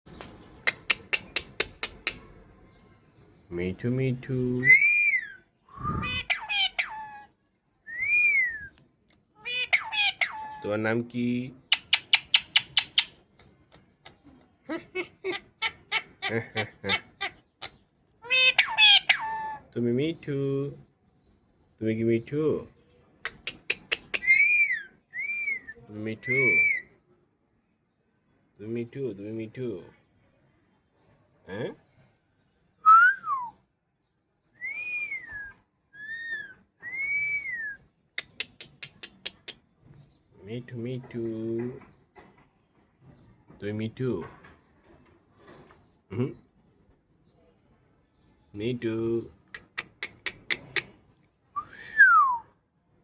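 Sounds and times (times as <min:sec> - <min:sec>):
sharp clicks: 0:00.2 - 0:02.2, 0:11.7 - 0:13.2
parakeet clicking chirps: 0:00.2 - 0:02.4, 0:11.6 - 0:13.9, 0:38.2 - 0:39.6, 0:49.5 - 0:51.0
parakeet chattering: 0:00.6 - 0:02.4, 0:06.0 - 0:07.2, 0:09.4 - 0:10.6, 0:11.6 - 0:19.6, 0:23.3 - 0:24.8, 0:38.2 - 0:39.7, 0:49.4 - 0:51.0.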